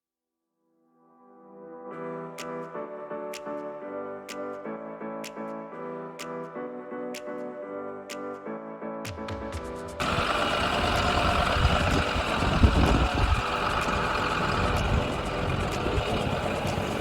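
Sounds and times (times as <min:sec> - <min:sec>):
diesel truck engine rumbling: 0:10.0 - 0:17.0.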